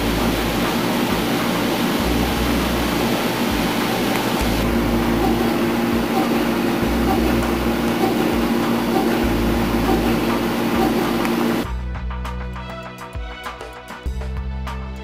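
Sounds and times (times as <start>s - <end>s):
machine tool running: 2.9s - 11.6s.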